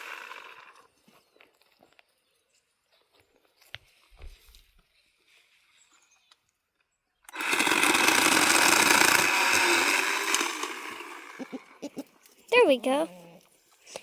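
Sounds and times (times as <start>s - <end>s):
electric chainsaw cutting wood: 0.0s - 0.9s, 7.3s - 11.8s.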